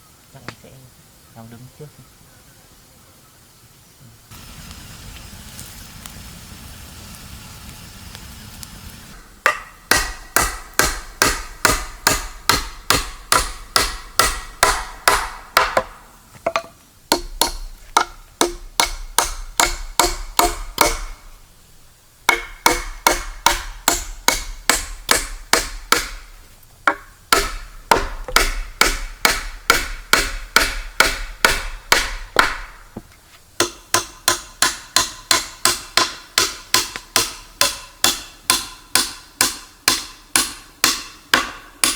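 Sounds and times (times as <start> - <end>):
hand tool striking wood: 9.2 - 21.2, 22.3 - 41.9.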